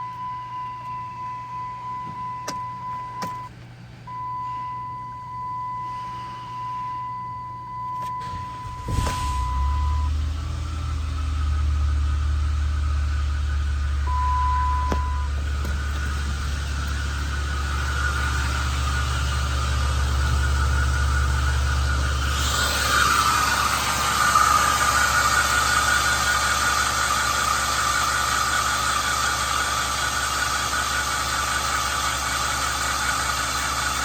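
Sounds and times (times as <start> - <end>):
van engine cranking and idling: 8.1 - 34.0
high electronic warning tone: 14.0 - 26.6.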